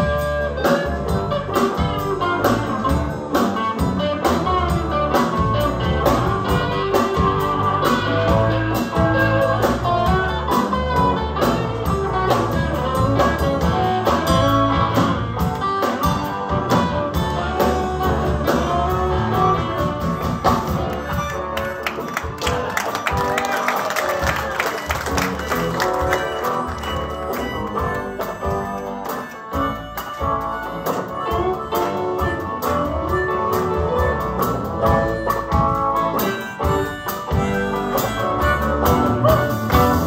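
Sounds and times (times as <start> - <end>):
electric guitar: 0.0 - 40.0
live blues band playing: 0.0 - 40.0.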